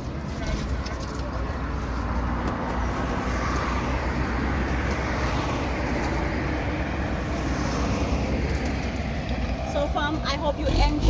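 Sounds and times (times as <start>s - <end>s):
vehicle road noise rumble: 0.0s - 11.0s.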